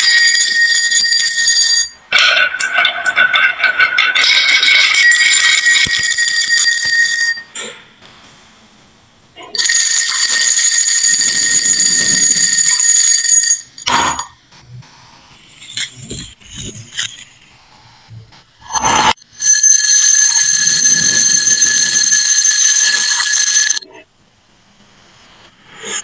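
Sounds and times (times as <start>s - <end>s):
glass marbles rolling and clattering: 0.0s - 7.4s.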